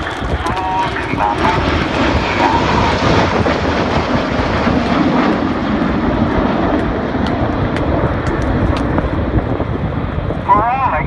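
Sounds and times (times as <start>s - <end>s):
jet engines roaring overhead: 0.0s - 11.0s.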